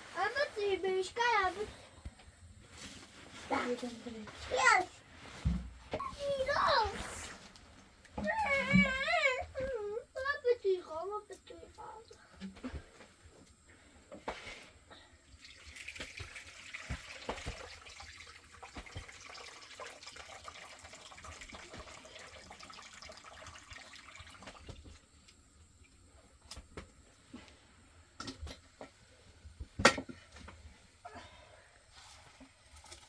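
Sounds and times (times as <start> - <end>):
water pouring: 15.3 - 25.0, 32.7 - 33.0.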